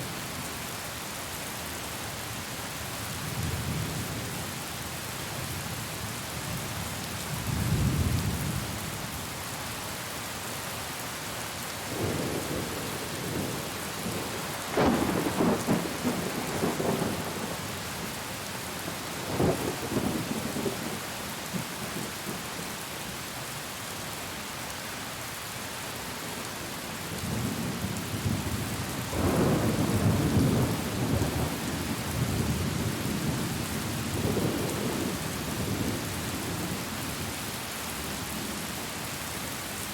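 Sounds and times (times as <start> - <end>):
heavy rain: 0.0 - 39.9
thunder: 29.1 - 31.6.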